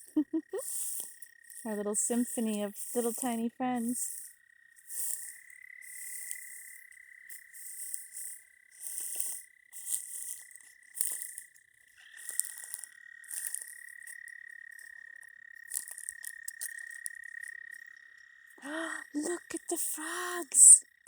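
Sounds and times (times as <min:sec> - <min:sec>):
short raspy frog calls: 0:04.1 - 0:19.2.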